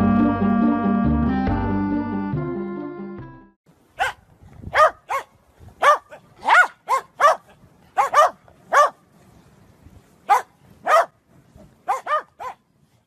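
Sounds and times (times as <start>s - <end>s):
dog barking: 4.0s - 9.0s, 10.3s - 11.2s, 11.8s - 12.6s.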